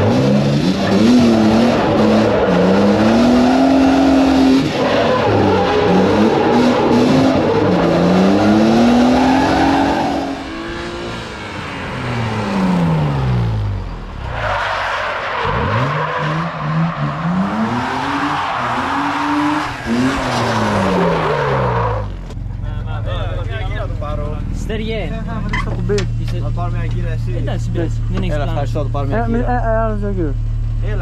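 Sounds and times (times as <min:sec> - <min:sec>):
kart engine revving: 0:00.0 - 0:22.3.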